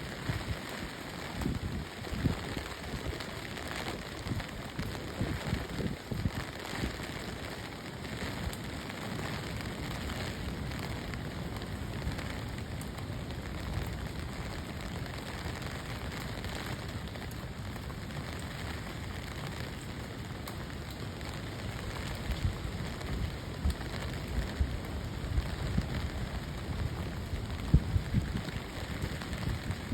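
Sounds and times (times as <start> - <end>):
heavy rain pouring: 0.0 - 29.9
wind buffeting microphone: 22.2 - 29.9.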